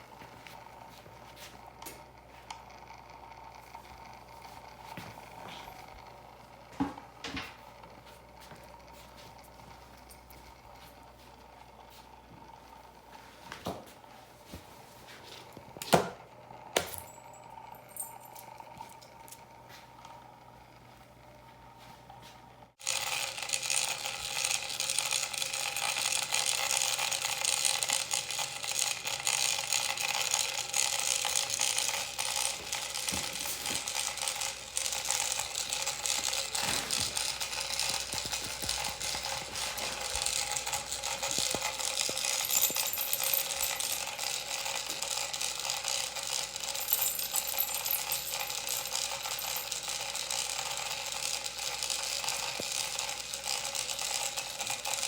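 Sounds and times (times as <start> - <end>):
rapid mechanical clicking and rattling: 22.8 - 55.0.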